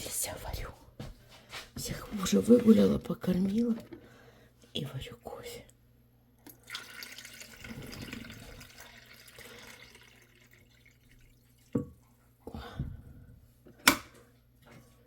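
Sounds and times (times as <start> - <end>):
kitchen tap running: 6.4 - 12.1.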